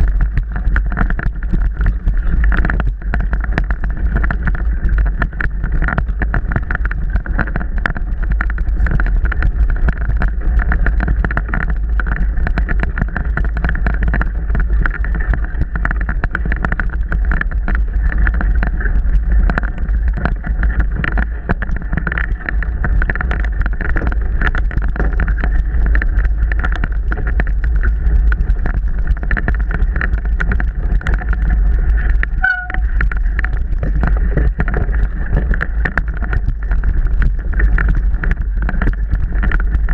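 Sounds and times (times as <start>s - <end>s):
bike clicks and rattles: 0.0s - 39.9s
wind and rumble on microphone: 0.0s - 39.9s
high squeak: 32.4s - 32.9s.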